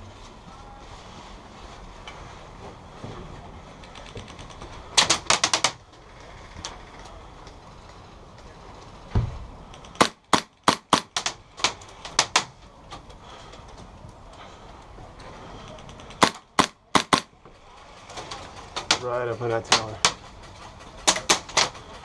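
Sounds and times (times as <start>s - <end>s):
dull thump: 9.1s - 9.5s
airsoft gun shots: 16.2s - 17.3s.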